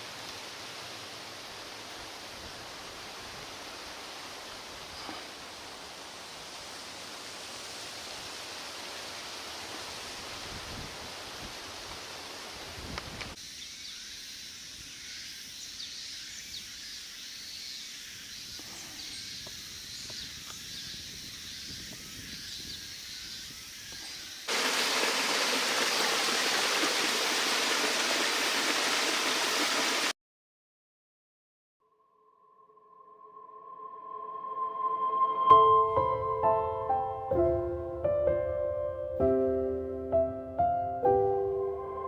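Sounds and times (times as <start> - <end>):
rushing outdoor noise: 24.5 - 30.1.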